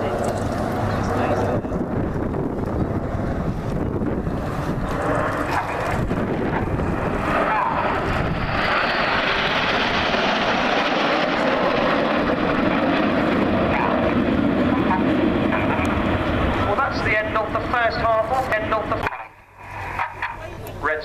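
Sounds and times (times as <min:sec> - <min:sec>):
jet engines roaring past: 0:00.0 - 0:21.0.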